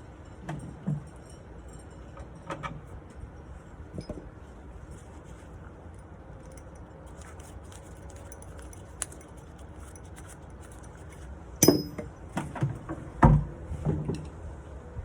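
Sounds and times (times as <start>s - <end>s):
sharp metallic clink: 11.6s - 12.2s.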